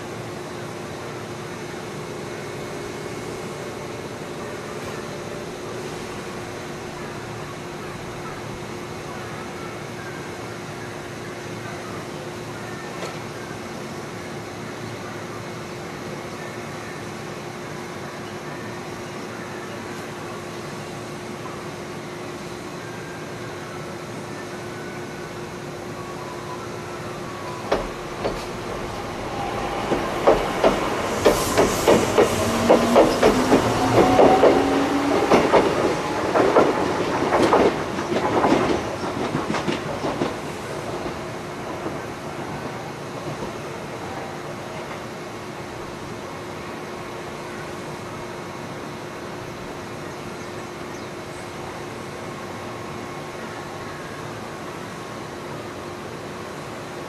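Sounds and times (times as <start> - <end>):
train wash rushing: 23.4 - 57.0
train wheels clacking over rail joints: 29.8 - 42.0.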